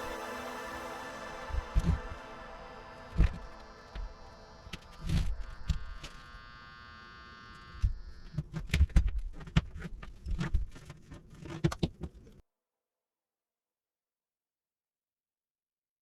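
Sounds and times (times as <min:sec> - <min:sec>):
transformer buzzing: 0:00.0 - 0:08.8.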